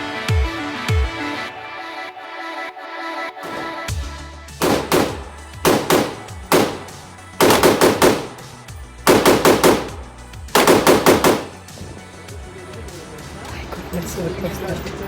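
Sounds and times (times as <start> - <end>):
gunshots: 3.4 - 3.9, 4.6 - 11.7
background music with low bass: 3.9 - 15.0.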